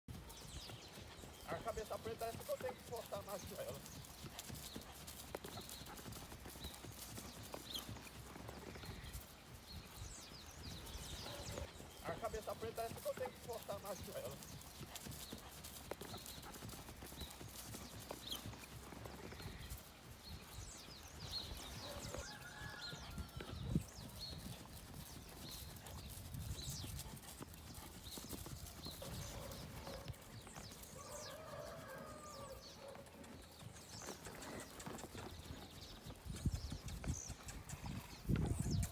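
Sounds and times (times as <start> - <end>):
horse hooves clip-clopping: 0.1 - 38.9.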